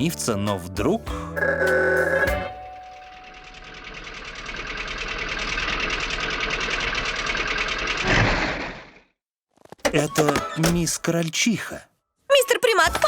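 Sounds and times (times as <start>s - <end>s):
cartoon car engine puttering: 3.3s - 9.1s.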